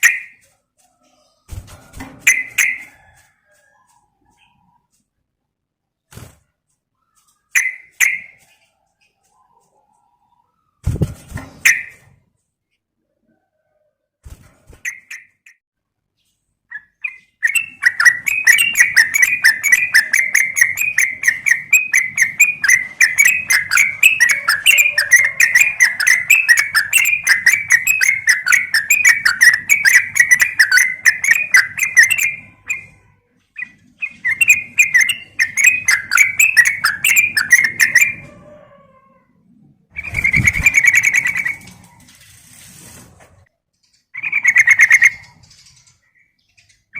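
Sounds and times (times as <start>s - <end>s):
bird chattering: 16.7s - 33.0s, 33.6s - 38.3s, 40.0s - 41.9s, 44.2s - 46.9s.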